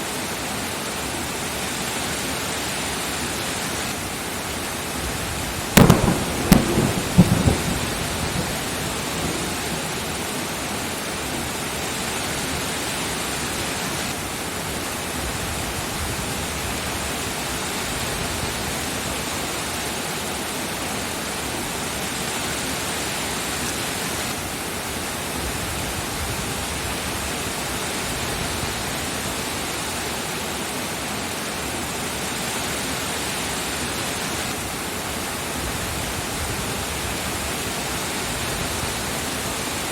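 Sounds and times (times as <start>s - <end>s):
steady rain: 0.0s - 39.9s
thunderclap rumbling: 5.7s - 10.5s.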